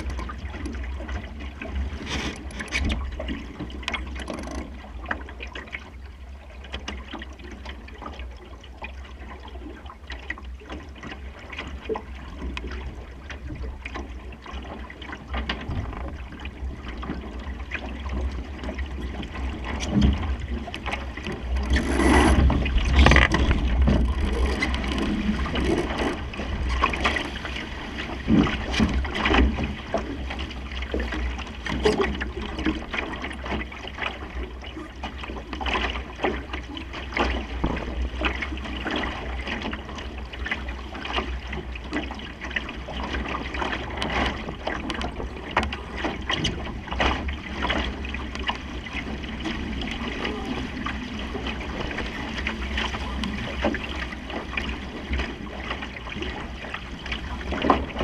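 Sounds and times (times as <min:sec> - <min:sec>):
water splashing along hull: 0:00.0 - 0:58.0
wind rumbling on microphone: 0:15.2 - 0:35.3.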